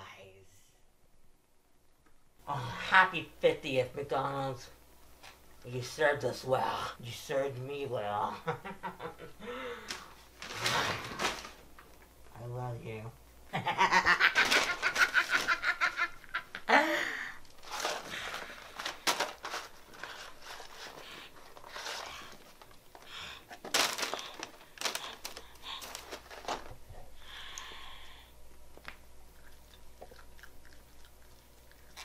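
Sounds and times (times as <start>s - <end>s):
cardboard and paper crackling: 9.9s - 12.0s, 14.4s - 16.0s, 17.5s - 26.8s
chewing and munching fries: 28.5s - 32.0s.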